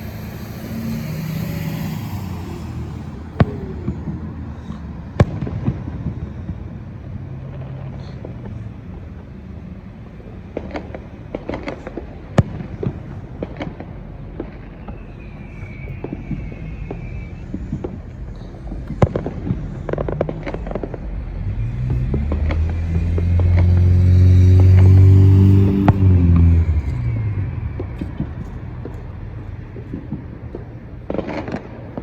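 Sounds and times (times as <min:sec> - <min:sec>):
car driving past: 0:00.0 - 0:09.3, 0:10.3 - 0:31.7
firecracker pops: 0:05.2 - 0:06.2, 0:10.5 - 0:21.2, 0:27.8 - 0:32.0.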